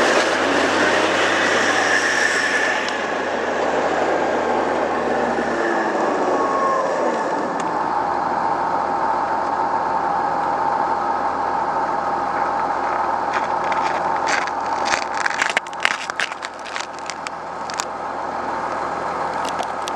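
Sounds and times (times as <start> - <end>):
sharp crackling clicks and snaps: 13.8 - 17.9, 18.7 - 19.9.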